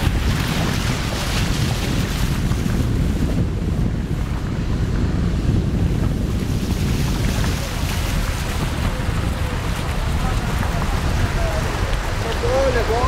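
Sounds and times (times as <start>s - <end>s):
water rushing and sloshing: 0.0s - 13.0s
low engine rumble: 1.9s - 13.0s.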